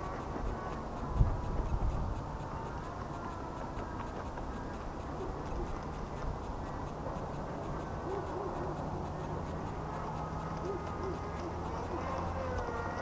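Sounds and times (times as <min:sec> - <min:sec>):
faint steady hum: 0:00.0 - 0:13.0
bird hooting: 0:03.8 - 0:07.1, 0:07.9 - 0:13.0.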